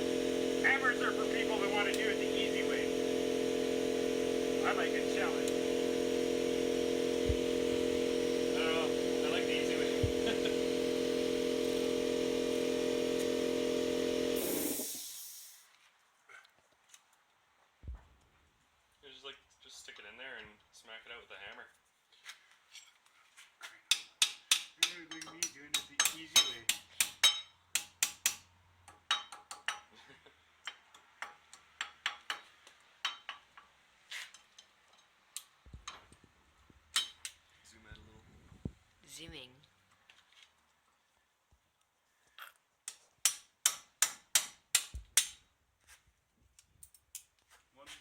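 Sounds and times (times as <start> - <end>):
motor-driven machine humming: 0.0 - 15.2
hiss of machine winding down: 0.0 - 15.7
hammer striking metal: 23.9 - 29.9, 43.2 - 45.4.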